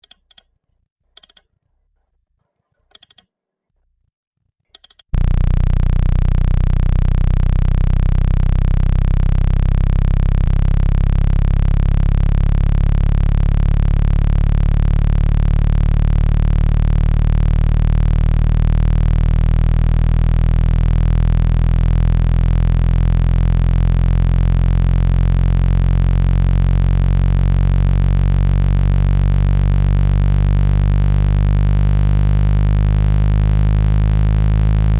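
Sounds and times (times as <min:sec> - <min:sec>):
steady low electronic tone: 0:05.2 - 0:34.9.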